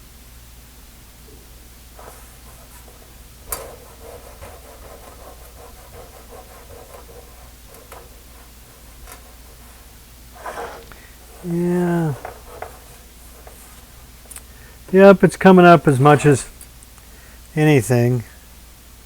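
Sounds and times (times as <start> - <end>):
steady low hum: 0.0 - 19.0
scratchy rubbing: 2.0 - 14.1.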